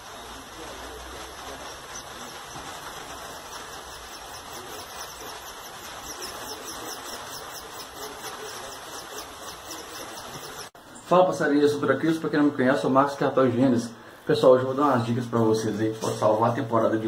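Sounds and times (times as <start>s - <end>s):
small birds chirping: 0.0s - 11.3s
steady hiss: 0.0s - 17.0s.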